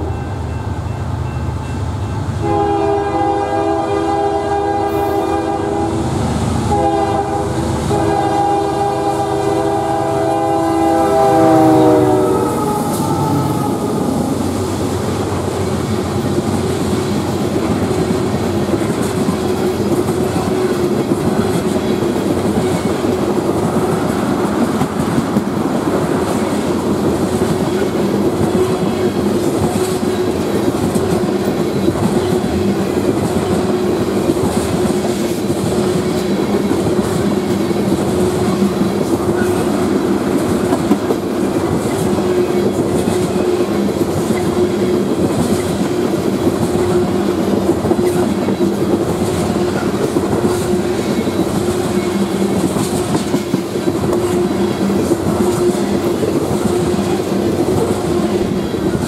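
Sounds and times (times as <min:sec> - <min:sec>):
train wheels rumbling on rail: 0:00.0 - 0:59.0
clickety-clack over rail joints: 0:12.6 - 0:59.0.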